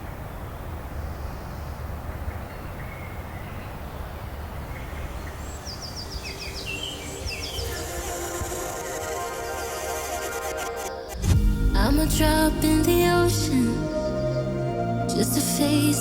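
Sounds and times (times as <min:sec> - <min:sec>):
birds chirping: 0:00.0 - 0:11.2
music: 0:07.0 - 0:16.0
steady low rumble: 0:11.2 - 0:16.0.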